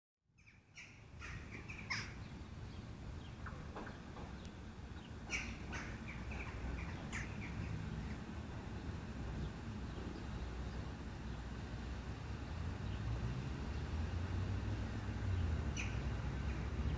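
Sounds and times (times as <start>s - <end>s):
birds giving sharp calls: 0.4s - 8.3s, 15.3s - 16.9s
low steady rumble: 0.4s - 16.9s.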